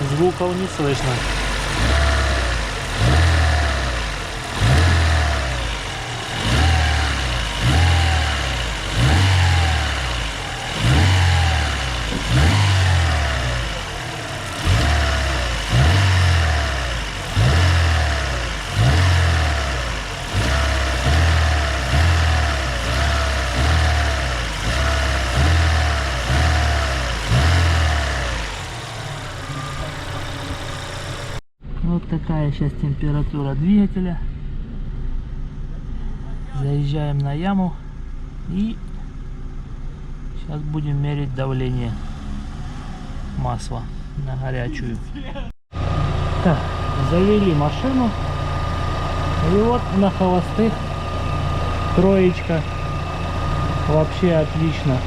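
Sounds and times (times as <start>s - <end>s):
car engine revving: 0.0s - 31.4s, 37.8s - 44.5s, 45.7s - 55.0s.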